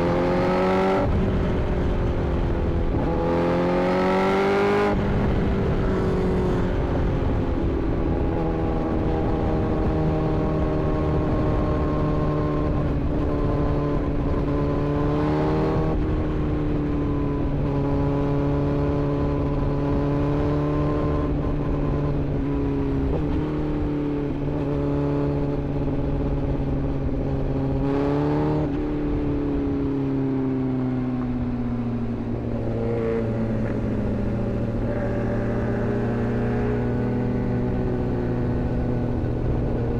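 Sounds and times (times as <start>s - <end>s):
wind and road noise: 0.0s - 39.9s
motorcycle engine running: 31.1s - 39.9s.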